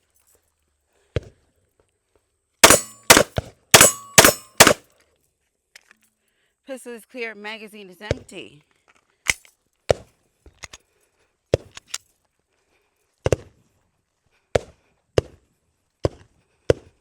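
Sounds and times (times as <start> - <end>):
gunshots with echo: 2.6 - 4.8.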